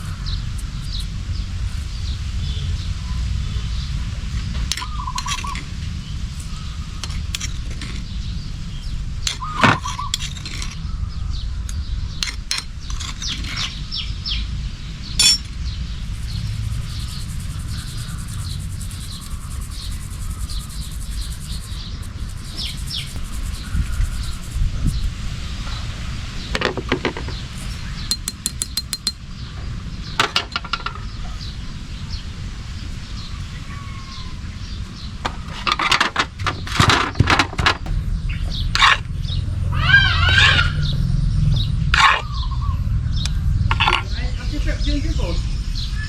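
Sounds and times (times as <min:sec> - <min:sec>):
bird chirping: 0:00.0 - 0:35.8, 0:36.6 - 0:46.0
light clinks and taps: 0:28.1 - 0:29.2.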